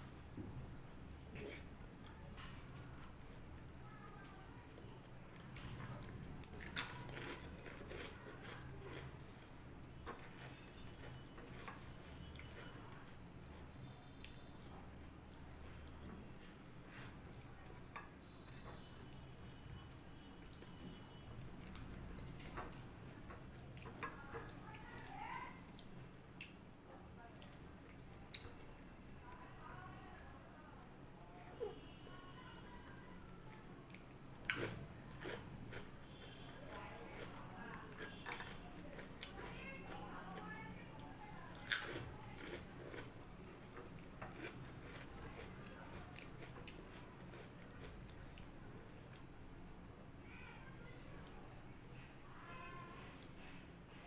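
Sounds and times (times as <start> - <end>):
soft wet chewing: 0.0 - 54.0
chewing crunches: 5.4 - 13.6, 33.9 - 40.0, 41.1 - 49.3
crunchy bite of fried food: 41.6 - 43.2.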